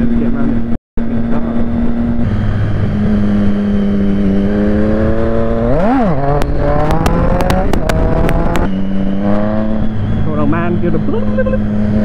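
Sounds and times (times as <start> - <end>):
motorcycle engine revving: 0.0 - 12.0
sharp clicks: 6.2 - 8.7.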